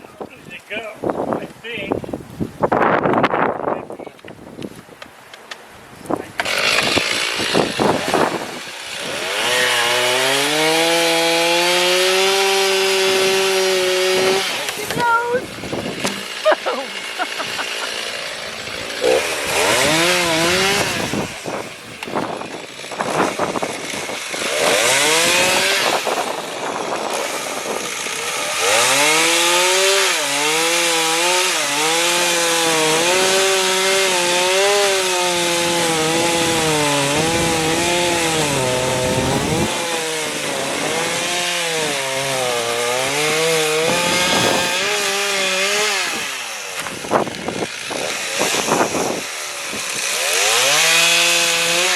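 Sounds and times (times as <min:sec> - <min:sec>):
chainsaw cutting wood: 0:06.3 - 0:51.9.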